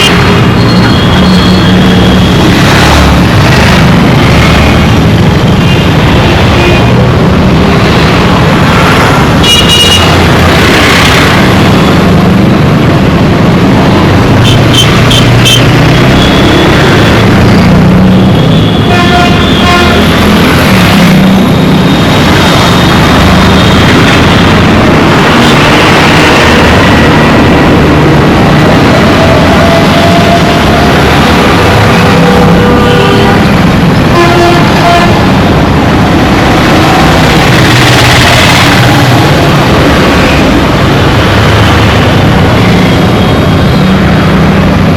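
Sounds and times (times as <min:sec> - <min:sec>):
road traffic engines and tyres: 0:00.0 - 0:44.9
car horns honking: 0:18.5 - 0:20.9, 0:31.8 - 0:35.4.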